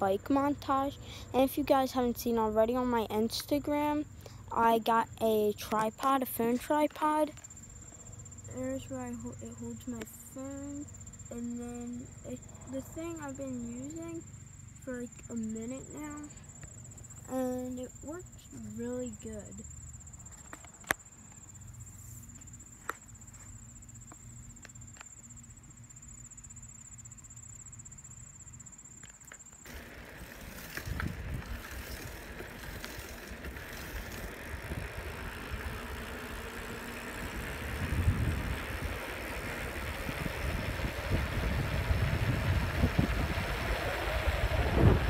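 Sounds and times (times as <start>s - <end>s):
high insect trill: 0.0s - 45.0s
bicycle rolling: 29.2s - 45.0s
wind buffeting microphone: 30.2s - 45.0s.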